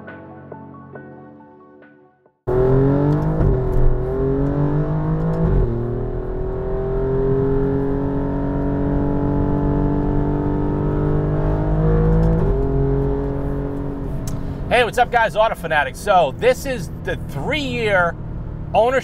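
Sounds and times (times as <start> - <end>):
car engine accelerating: 2.5 - 19.0.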